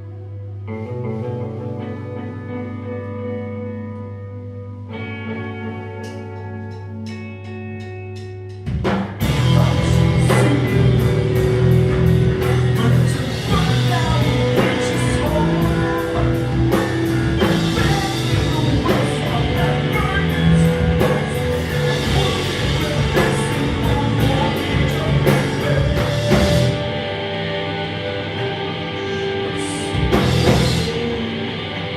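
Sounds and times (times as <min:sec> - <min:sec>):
rock band playing live: 0:00.0 - 0:31.9.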